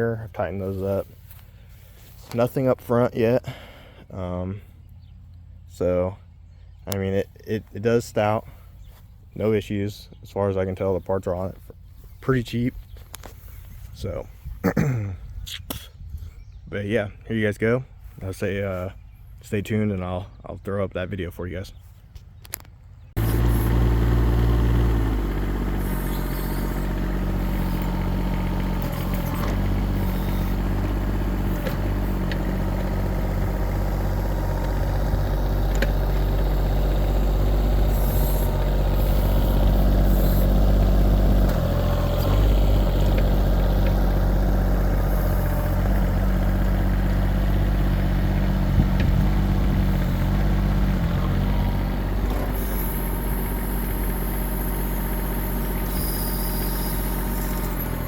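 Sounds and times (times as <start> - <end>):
excavator diesel engine running: 23.2 - 58.0.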